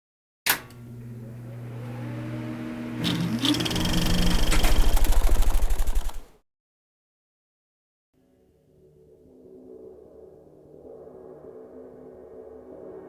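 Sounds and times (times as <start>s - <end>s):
subway train electric hum: 0.6s - 6.3s.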